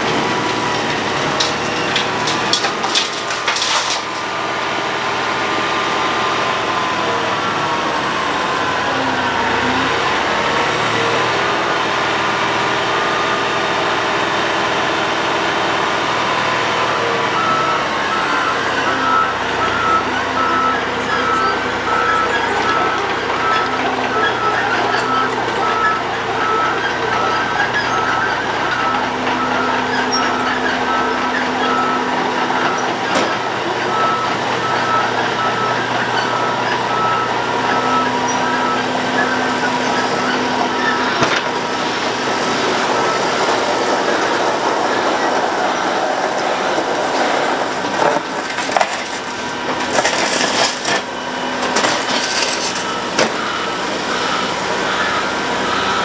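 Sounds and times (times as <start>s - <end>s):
road planer engine and drum: 0.0s - 56.0s
reversing alarm beeping: 5.2s - 14.5s, 16.2s - 56.0s.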